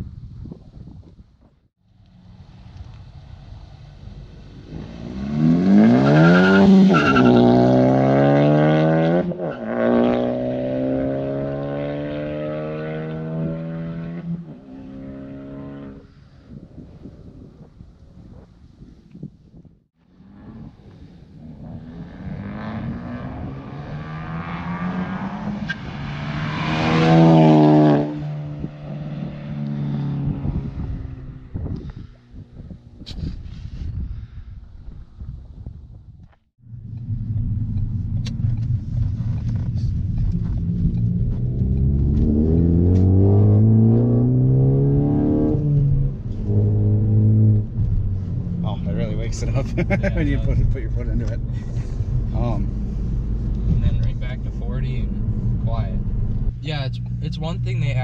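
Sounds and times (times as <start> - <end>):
car engine accelerating: 2.0 - 16.0, 36.6 - 58.0.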